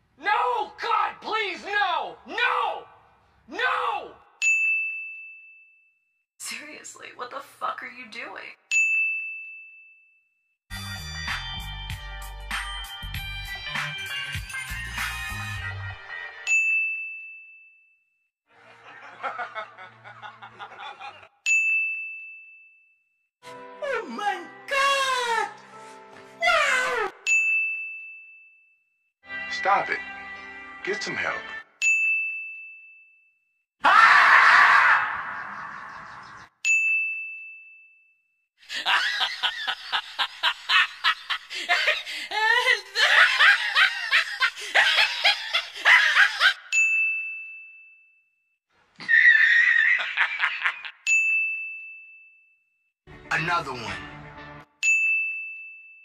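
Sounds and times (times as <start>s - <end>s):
bright ding chime: 27.2s - 28.6s, 31.8s - 33.2s, 46.7s - 48.1s, 51.1s - 52.4s, 54.8s - 56.0s
fast choppy laughter: 38.7s - 46.6s
man chuckling: 38.7s - 46.6s.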